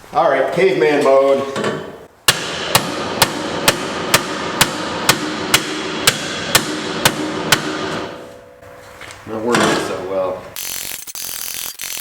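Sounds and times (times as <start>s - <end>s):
hammer on metal: 2.3s - 8.4s.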